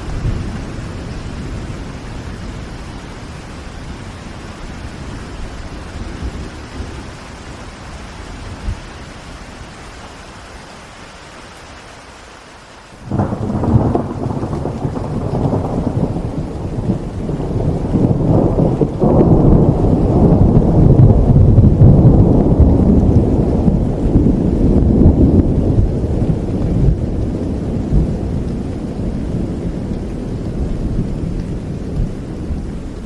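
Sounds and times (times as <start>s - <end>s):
thunder clap and rumble: 0.0s - 2.8s, 13.0s - 33.0s
rain falling: 0.0s - 33.0s.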